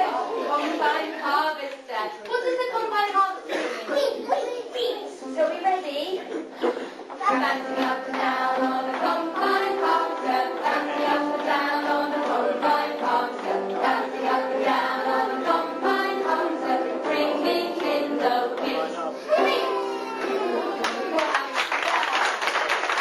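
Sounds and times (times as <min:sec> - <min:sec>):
group of voices singing: 0:00.0 - 0:01.6, 0:07.2 - 0:20.8
music: 0:07.2 - 0:21.2.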